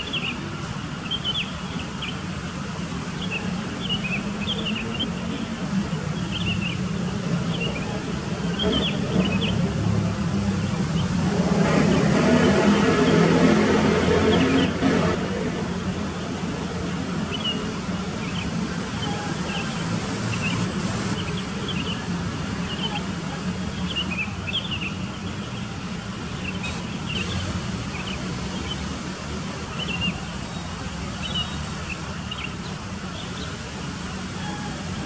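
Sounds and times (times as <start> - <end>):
small birds chirping: 0.0 - 9.7.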